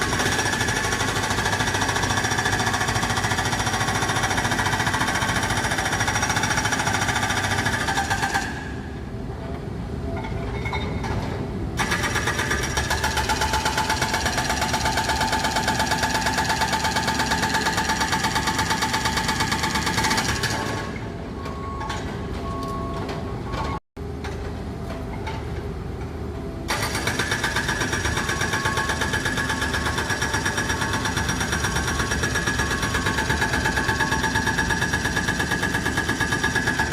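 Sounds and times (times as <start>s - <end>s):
hydraulic breaker hammering: 26.7s - 36.9s.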